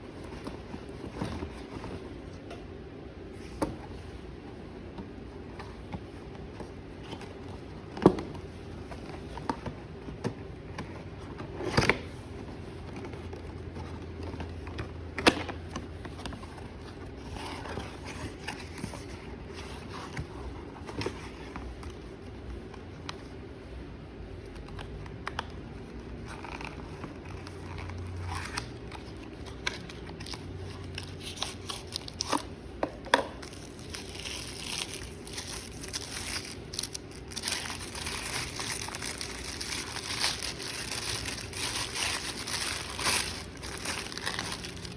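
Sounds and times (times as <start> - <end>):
packaging crinkling and rustling: 26.2 - 32.6, 33.2 - 44.9.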